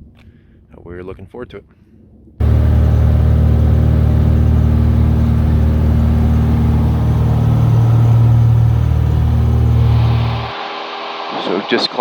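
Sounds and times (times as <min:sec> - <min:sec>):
light aircraft engine drone: 0:02.4 - 0:10.5.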